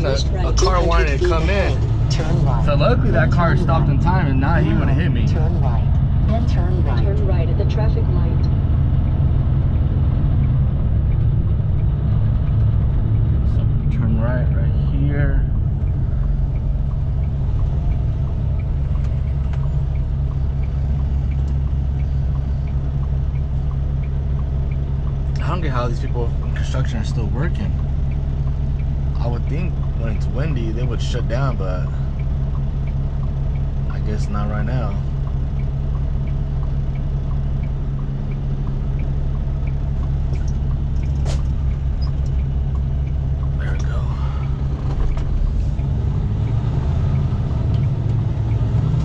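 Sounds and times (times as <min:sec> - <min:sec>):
truck engine and road rumble: 0:00.0 - 0:49.0
turn signal ticking: 0:00.0 - 0:49.0.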